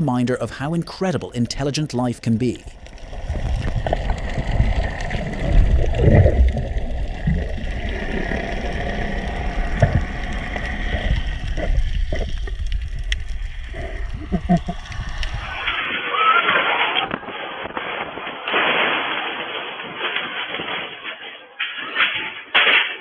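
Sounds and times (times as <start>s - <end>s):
steady low rumble: 0.0s - 15.8s
water sloshing and gurgling: 2.7s - 15.8s.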